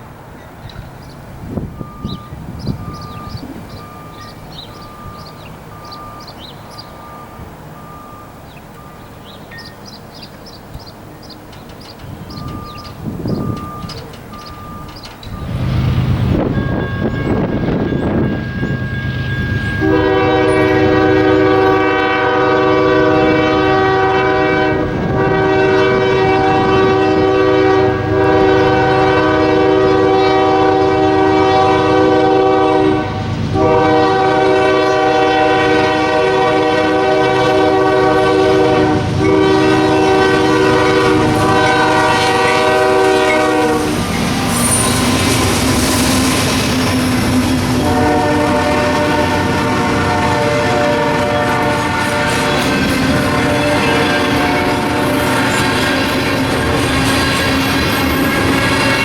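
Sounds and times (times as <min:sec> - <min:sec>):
train rumbling: 0:00.0 - 0:59.0
train wheels on rails: 0:00.0 - 0:59.0
locomotive air horn blasts: 0:16.3 - 0:59.0.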